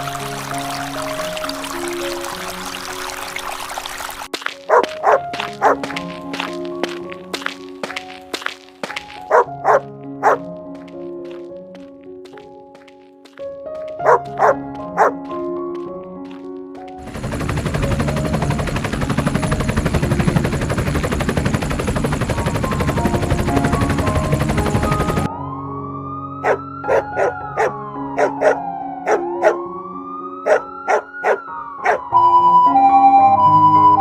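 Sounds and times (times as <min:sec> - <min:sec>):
background music: 0:00.0 - 0:34.0
dog barking: 0:04.7 - 0:05.8, 0:09.3 - 0:10.4, 0:14.0 - 0:15.2, 0:26.4 - 0:29.6, 0:30.4 - 0:32.0
fast rhythmic rotor-like noise: 0:17.0 - 0:25.3
siren-like wail: 0:25.2 - 0:34.0.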